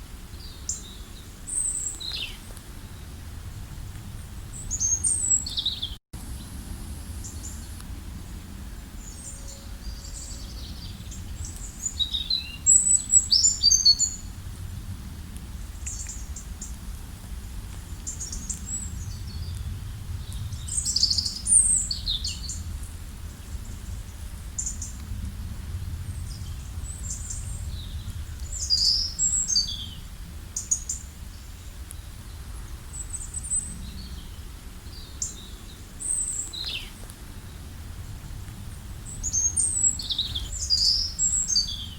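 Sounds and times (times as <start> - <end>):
birds chirping and trilling: 4.4 - 6.0, 9.0 - 14.3, 17.9 - 22.7, 26.1 - 37.7, 39.0 - 41.9
steady low rumble: 14.0 - 41.9.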